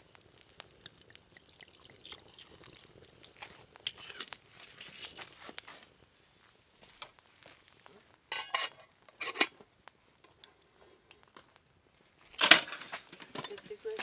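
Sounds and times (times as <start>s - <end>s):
metal utensil clinking on cookware: 8.3s - 9.6s, 12.4s - 14.0s.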